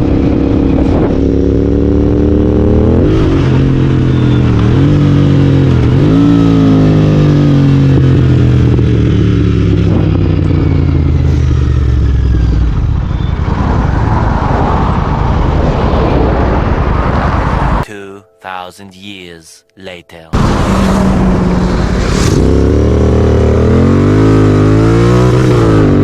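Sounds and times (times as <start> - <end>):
motorcycle engine: 0.0 - 17.8, 20.4 - 26.0
rushing wind noise: 12.4 - 17.8.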